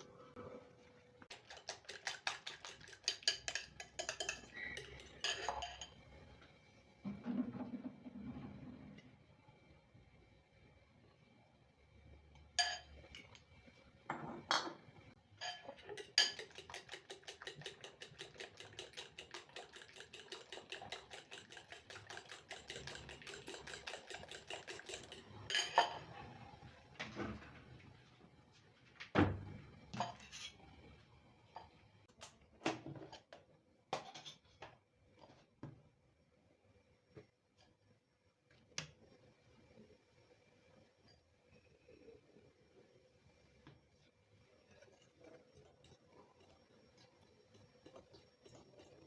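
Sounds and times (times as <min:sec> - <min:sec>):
dishes clinking and knocking: 0:02.0 - 0:06.0, 0:14.1 - 0:14.8, 0:15.4 - 0:26.2, 0:29.2 - 0:30.6.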